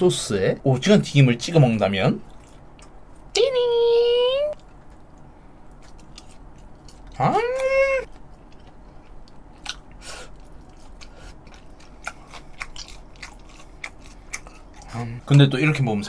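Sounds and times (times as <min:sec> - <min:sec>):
chewing fried squid: 0:02.2 - 0:03.4, 0:04.5 - 0:16.0
person voiced exclamation: 0:07.2 - 0:08.1.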